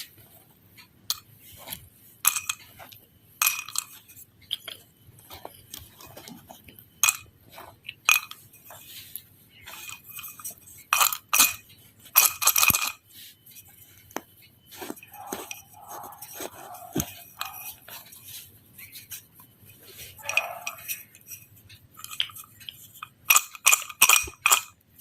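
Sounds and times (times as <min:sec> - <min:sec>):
hard objects clinking together: 0:09.6 - 0:13.0, 0:14.2 - 0:24.8.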